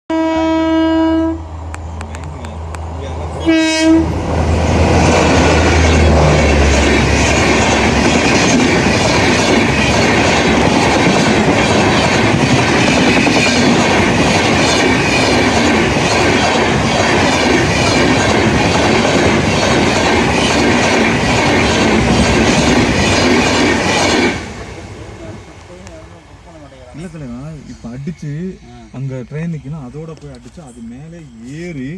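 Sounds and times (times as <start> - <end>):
train wheels clickety-clack: 4.8 - 24.7.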